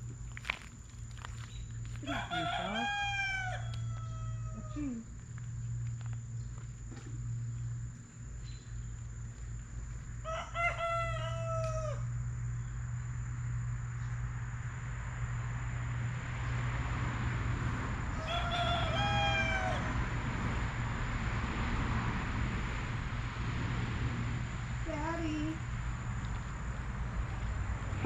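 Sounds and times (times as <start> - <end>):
rooster crowing: 2.0 - 5.0, 10.2 - 12.2, 18.1 - 20.1.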